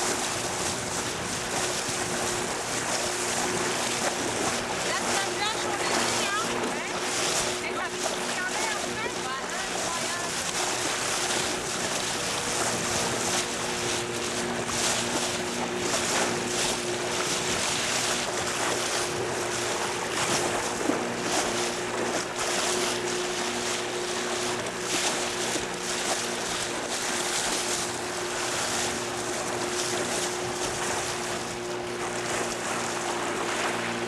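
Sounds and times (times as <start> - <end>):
boat motor running: 0.0 - 34.0
rushing water: 0.0 - 34.0
wind on microphone: 0.0 - 34.0.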